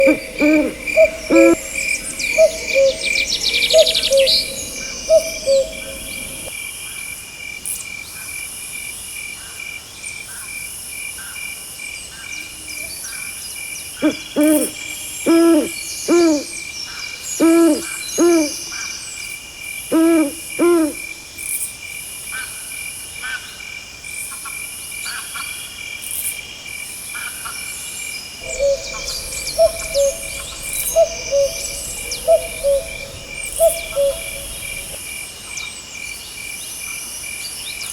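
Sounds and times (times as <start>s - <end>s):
crickets chirping: 0.0s - 6.5s, 28.4s - 35.3s
cuckoo calling: 0.0s - 6.5s, 28.4s - 35.1s
owl hooting: 0.0s - 6.5s, 15.3s - 16.4s, 20.0s - 21.0s, 28.4s - 35.1s.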